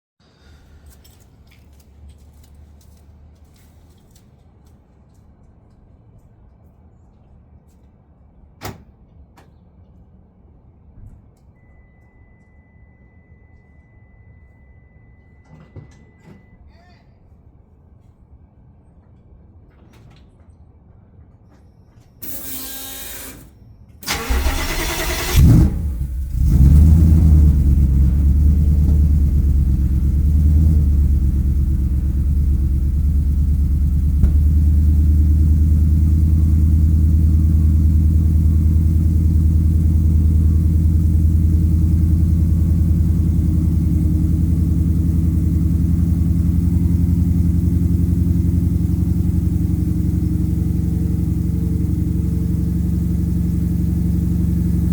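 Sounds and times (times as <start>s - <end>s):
starter cranking: 22.2s - 26.5s
car engine idling deeply: 24.2s - 54.9s.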